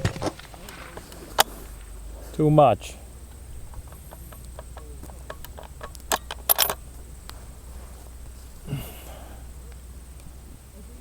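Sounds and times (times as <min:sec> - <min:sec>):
metallic clicks from rifle handling: 0:03.3 - 0:07.4
low grunt-like voice: 0:08.6 - 0:09.7.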